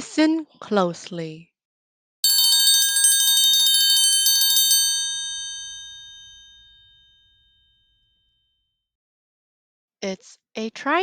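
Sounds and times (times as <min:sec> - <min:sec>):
triangle roll ringing: 0:02.2 - 0:07.4.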